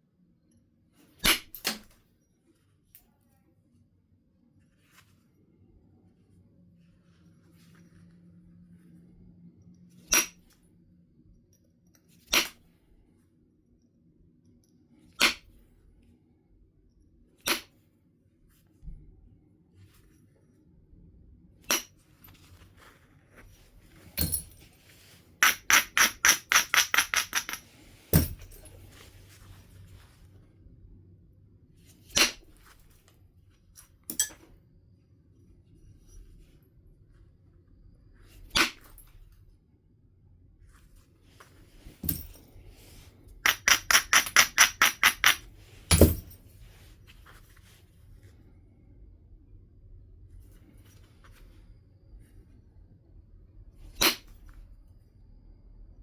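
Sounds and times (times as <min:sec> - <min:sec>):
flint knapping strikes: 0:25.4 - 0:28.7, 0:43.5 - 0:46.3.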